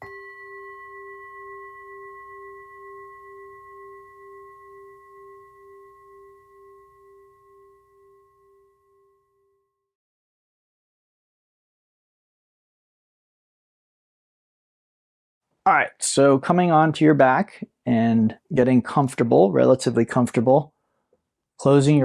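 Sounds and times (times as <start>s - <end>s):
singing bowl ringing: 0.0s - 10.0s.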